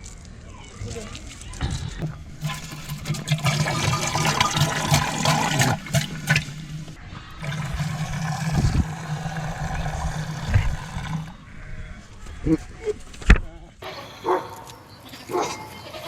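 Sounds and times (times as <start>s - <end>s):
liquid splashing and trickling: 2.0s - 11.4s.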